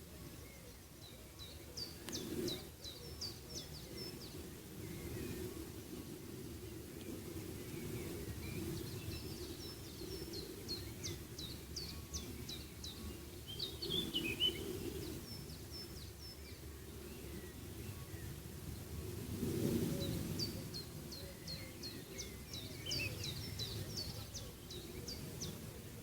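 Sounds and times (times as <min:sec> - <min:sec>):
small songbirds chirping: 0:00.0 - 0:26.0.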